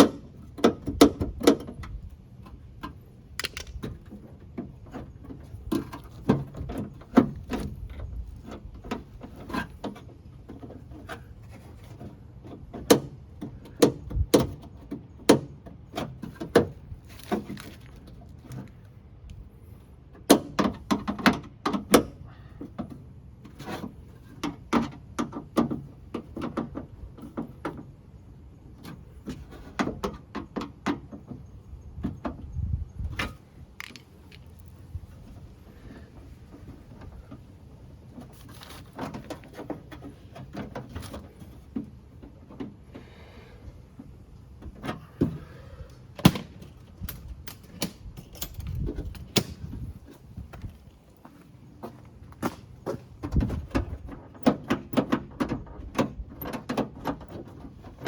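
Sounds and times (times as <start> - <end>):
metal parts clicking and rattling: 3.4 - 4.1, 33.8 - 34.8, 47.1 - 49.5.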